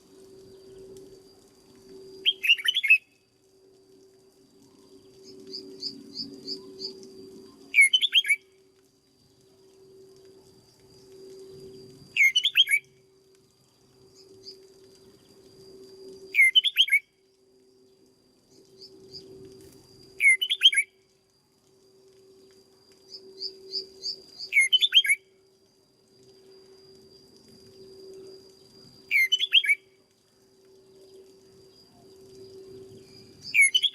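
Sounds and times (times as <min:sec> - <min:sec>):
faint steady hum: 0:00.0 - 0:33.9
soft high bird chirps: 0:02.0 - 0:03.3, 0:05.0 - 0:08.6, 0:11.6 - 0:13.0, 0:16.3 - 0:17.1, 0:20.2 - 0:21.0, 0:23.1 - 0:25.4, 0:27.6 - 0:30.0, 0:30.9 - 0:33.9
bird song phrase: 0:02.2 - 0:03.0, 0:07.7 - 0:08.4, 0:12.2 - 0:12.8, 0:16.4 - 0:17.0, 0:20.2 - 0:20.9, 0:23.4 - 0:25.2, 0:29.1 - 0:29.8, 0:33.4 - 0:33.9.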